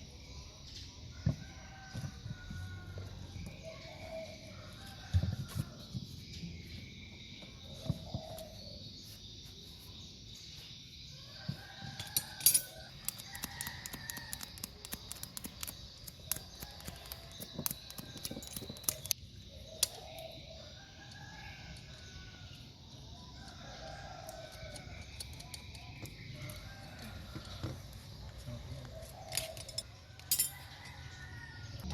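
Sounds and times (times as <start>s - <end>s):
rooster crowing: 1.2s - 5.9s, 11.2s - 14.6s, 29.1s - 31.9s
sharp clicks and taps: 13.0s - 19.2s.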